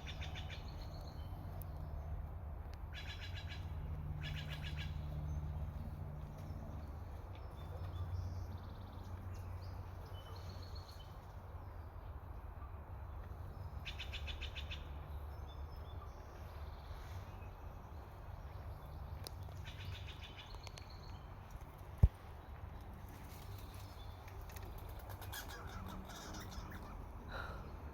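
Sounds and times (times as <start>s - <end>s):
jay calling: 25.2s - 27.5s.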